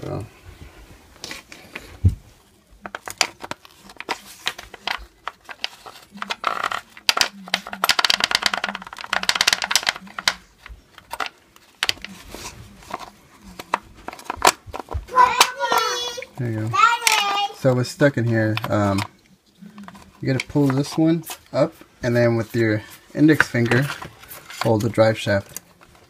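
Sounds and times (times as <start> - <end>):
small plastic parts clicking and rattling: 2.8 - 19.1.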